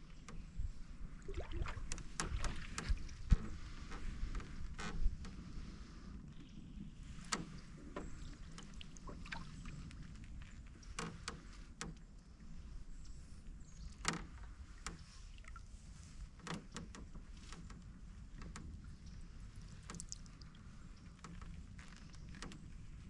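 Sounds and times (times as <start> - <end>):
paddle knocking against hull: 1.3 - 5.4, 16.0 - 22.6.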